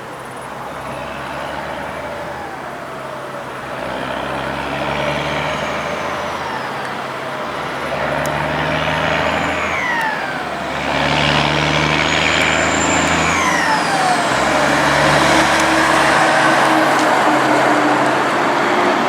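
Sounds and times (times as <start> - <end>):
diesel engines working hard: 0.0 - 19.0
high whistle rising and falling: 5.4 - 18.5.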